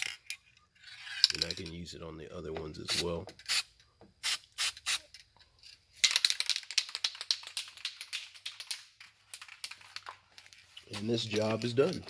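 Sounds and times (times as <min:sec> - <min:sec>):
small hard objects clicking: 0:06.0 - 0:12.0.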